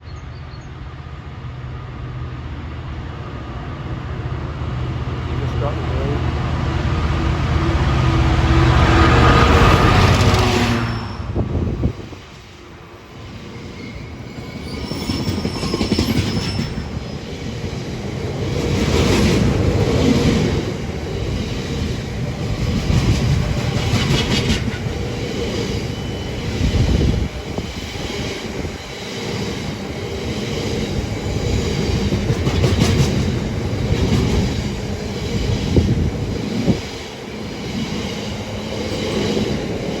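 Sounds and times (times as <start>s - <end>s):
diesel locomotive accelerating: 0.0s - 40.0s
heavy rail rumble: 0.0s - 40.0s
wheel squeal: 9.6s - 11.8s, 13.2s - 17.4s.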